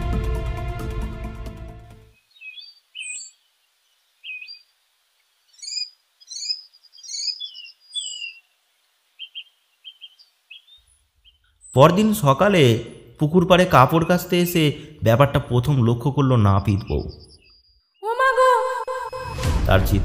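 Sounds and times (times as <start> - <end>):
small birds chirping: 2.2 - 18.2
whistled chirps and falling notes: 16.8 - 19.5.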